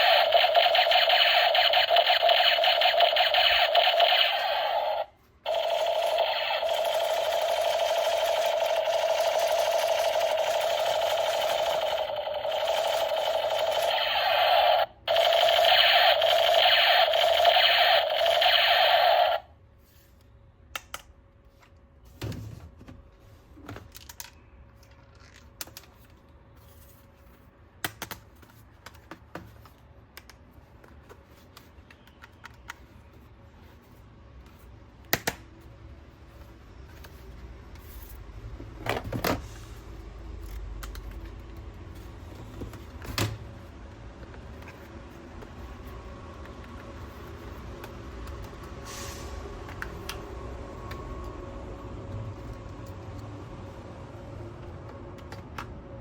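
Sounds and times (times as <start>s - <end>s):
toy gun pulsing buzz: 0.0s - 19.5s.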